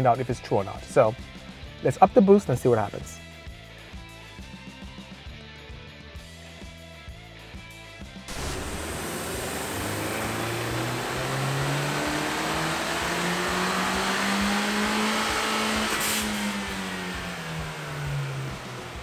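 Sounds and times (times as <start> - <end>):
blow-off valve hiss: 8.3 - 10.4
car engine revving under load: 8.3 - 19.0.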